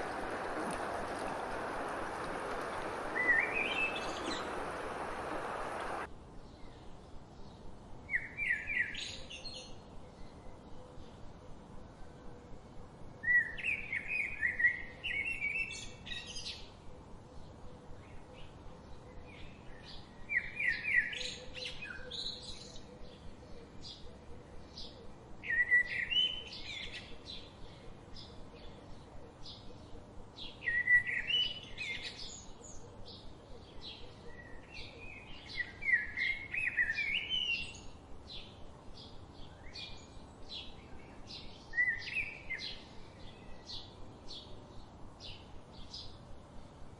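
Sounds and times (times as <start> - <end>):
songbird warbling: 0.0 - 6.1.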